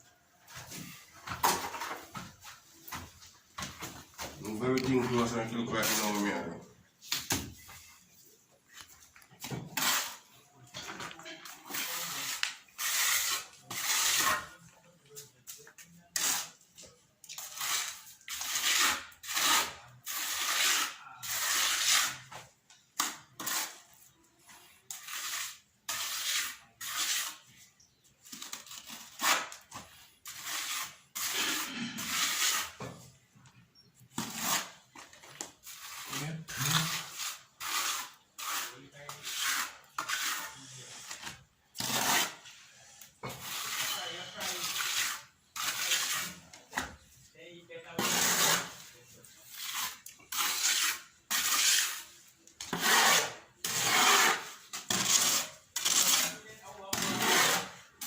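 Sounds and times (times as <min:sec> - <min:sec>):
rubbing scrapes on hard surface: 0:11.2 - 0:22.5, 0:23.3 - 0:33.1, 0:34.2 - 0:58.0.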